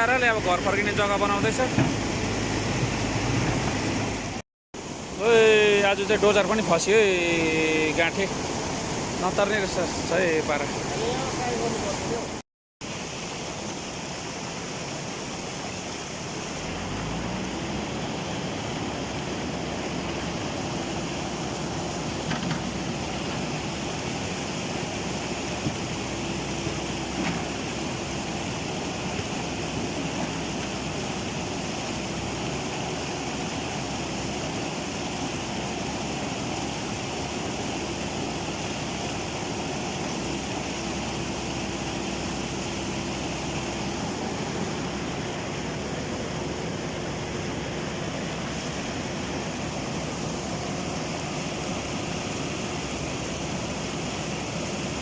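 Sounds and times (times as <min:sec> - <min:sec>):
rushing floodwater: 0:00.0 - 0:55.0
diesel engine revving: 0:16.5 - 0:24.4.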